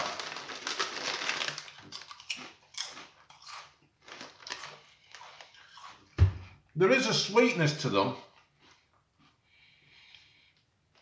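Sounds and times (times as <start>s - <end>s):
person chewing crisps: 0.0s - 6.1s.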